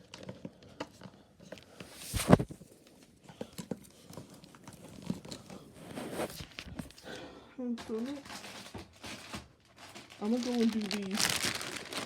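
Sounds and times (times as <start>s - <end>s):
gift bag rustling: 1.9s - 2.6s, 7.9s - 12.0s.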